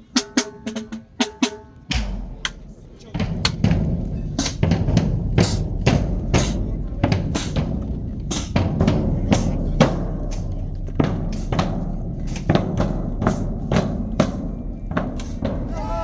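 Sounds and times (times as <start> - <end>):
snare drum cracks and rimshots: 0.2 - 3.8
bass drums: 1.8 - 16.0.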